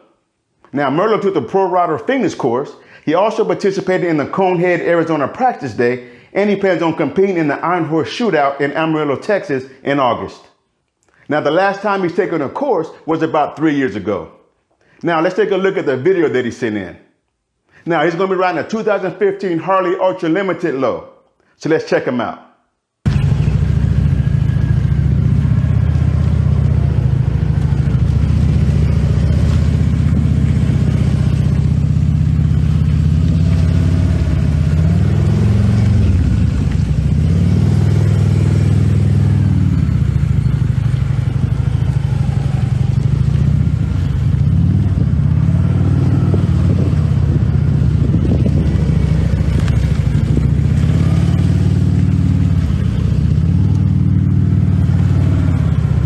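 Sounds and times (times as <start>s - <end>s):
motorcycle engine revving: 23.1s - 56.0s.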